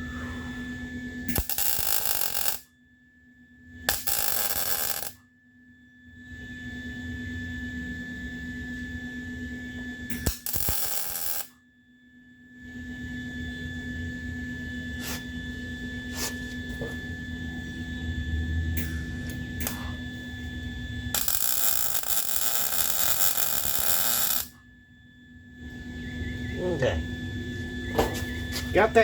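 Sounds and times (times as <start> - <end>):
electrical hum: 0.0 - 2.7, 3.3 - 5.2, 6.2 - 11.5, 12.2 - 29.0
welding arc crackling: 1.3 - 2.6, 3.9 - 5.2, 10.1 - 11.5, 21.1 - 24.6.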